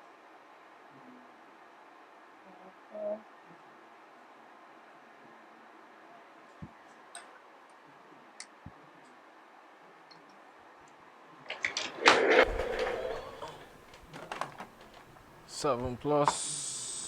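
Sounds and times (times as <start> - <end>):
clattering rustling handling noise: 11.5 - 16.1.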